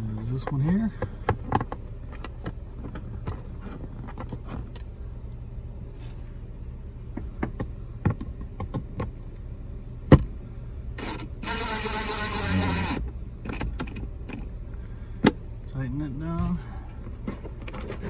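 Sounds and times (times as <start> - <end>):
car engine idling: 0.0 - 18.0
clicks and taps on plastic dash: 0.2 - 4.9, 7.1 - 9.2.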